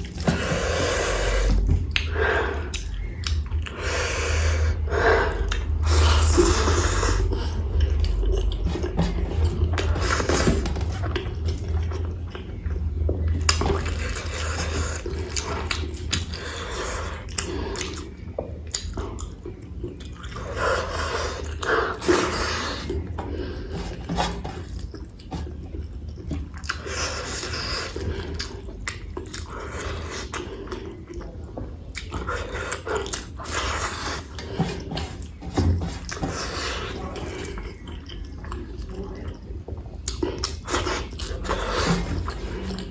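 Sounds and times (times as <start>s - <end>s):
chewing with wet mouth clicks: 0.0s - 42.9s.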